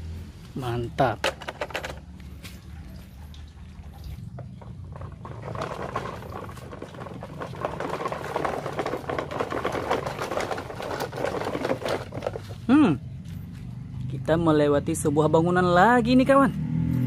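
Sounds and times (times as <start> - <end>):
toy truck wheels rolling over dirt: 1.0 - 2.1, 4.4 - 13.4.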